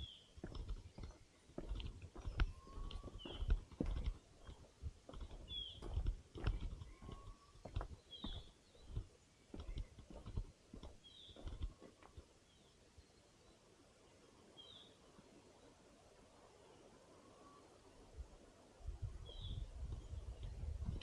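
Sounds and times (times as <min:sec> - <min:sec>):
footsteps on forest trail: 0:00.0 - 0:12.3
bird chirping: 0:00.0 - 0:15.0.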